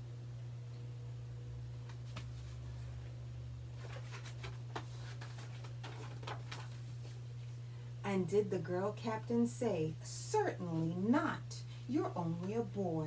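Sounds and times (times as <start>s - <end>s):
paper pages rustling: 1.9s - 2.9s, 3.8s - 7.2s.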